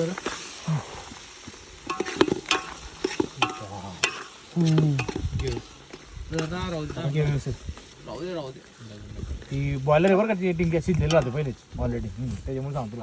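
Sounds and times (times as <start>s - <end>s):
food sizzling in a pan: 0.0s - 13.0s
spoon knocking against pan: 1.9s - 4.3s.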